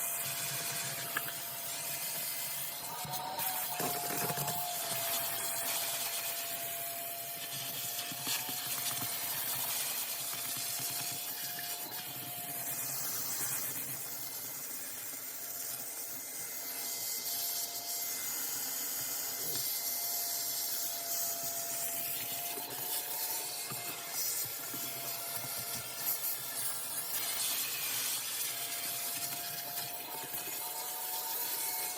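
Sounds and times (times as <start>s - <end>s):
vacuum cleaner motor whine: 0.0s - 31.9s
vacuum nozzle rubbing on surfaces: 20.4s - 31.9s.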